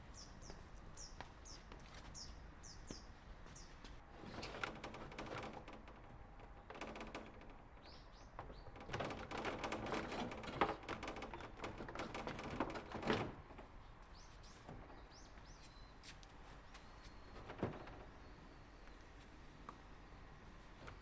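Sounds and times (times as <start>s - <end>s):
small birds chirping: 0.0s - 3.9s, 7.8s - 9.0s, 13.8s - 17.5s
light clatter and knocks: 4.2s - 15.6s, 16.7s - 18.3s.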